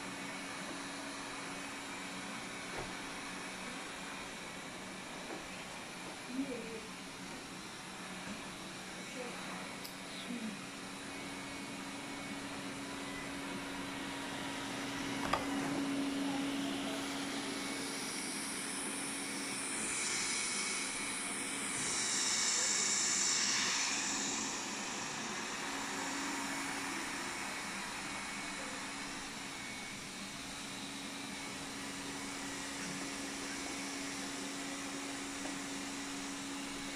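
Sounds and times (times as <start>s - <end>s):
robot vacuum fan whir: 0.0s - 36.9s
hiss: 17.9s - 29.4s.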